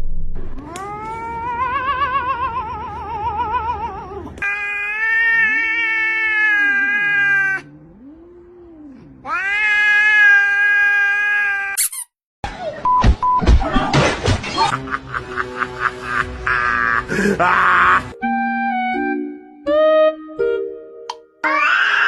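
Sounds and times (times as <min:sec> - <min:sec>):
cat yowling: 0:00.6 - 0:12.0, 0:21.4 - 0:22.0
fainter lower cat call: 0:00.6 - 0:12.0.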